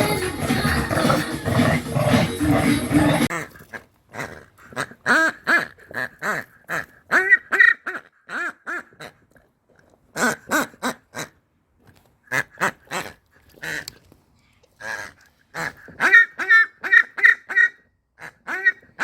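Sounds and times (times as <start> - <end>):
dogs barking: 0.0 - 3.3.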